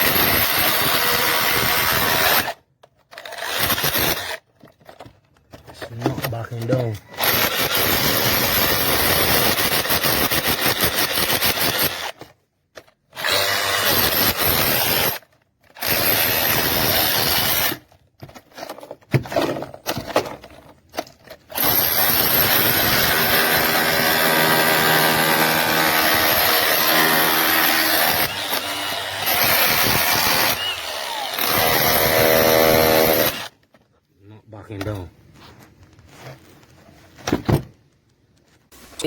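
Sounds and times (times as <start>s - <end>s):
rotary hammer drilling concrete: 0.0s - 4.4s, 7.2s - 12.3s, 13.1s - 17.8s, 21.5s - 33.6s.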